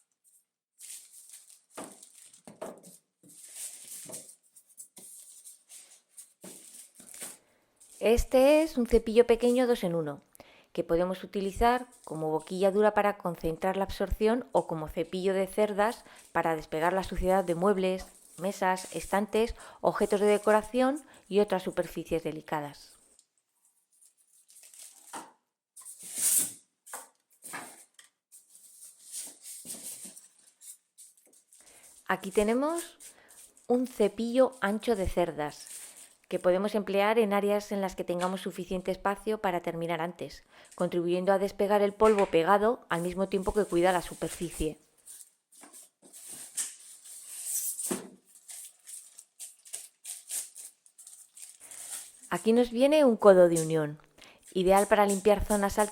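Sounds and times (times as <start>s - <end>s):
packaging rustling and scraping: 0.1s - 8.2s, 15.8s - 20.8s, 23.0s - 36.3s, 43.0s - 52.8s, 54.4s - 55.9s.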